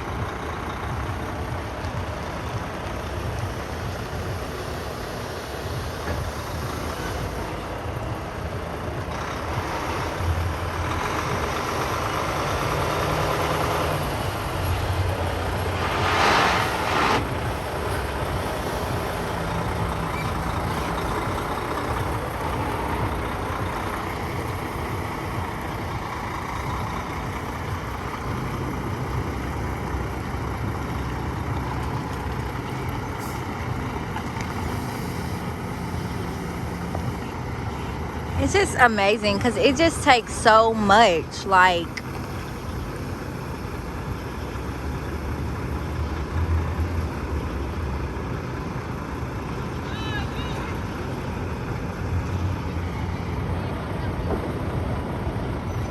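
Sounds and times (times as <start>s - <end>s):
diesel truck engine running: 0.0s - 55.9s
air brake hiss: 15.3s - 19.0s.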